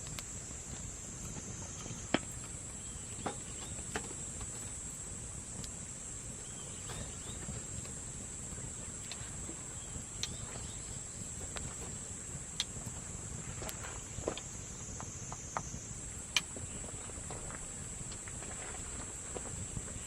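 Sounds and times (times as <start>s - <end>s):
campfire crackling and popping: 0.0s - 20.0s
insects droning: 0.0s - 20.0s.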